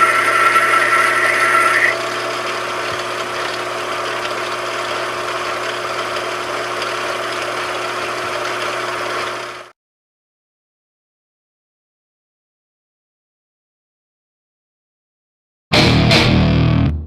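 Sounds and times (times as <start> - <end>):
machine tool motor humming: 0.0 - 9.7.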